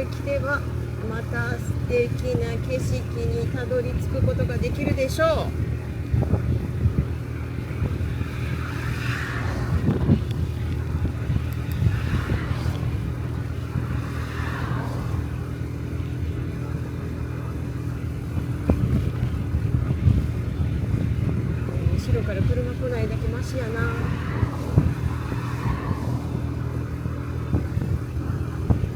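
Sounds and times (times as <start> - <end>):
scooter engine running under load: 0.0 - 28.9
rushing noise: 7.8 - 16.3.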